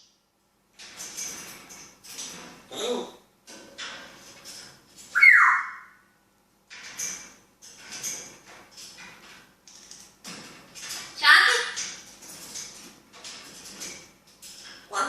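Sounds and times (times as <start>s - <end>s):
parrot whistled call: 5.2s - 6.0s.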